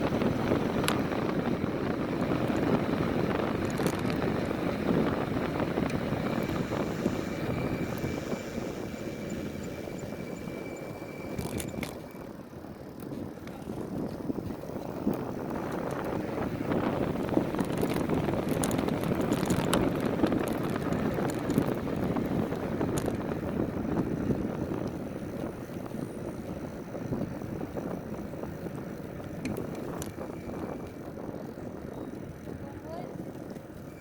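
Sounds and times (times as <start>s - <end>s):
trail bike motor running: 0.0s - 34.0s
wind: 0.0s - 34.0s
thin high whine: 6.3s - 12.3s.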